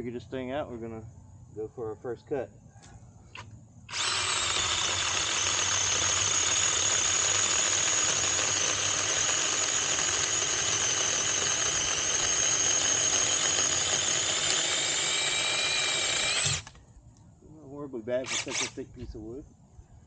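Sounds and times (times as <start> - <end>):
chainsaw cutting wood: 3.9 - 16.8, 18.3 - 18.8.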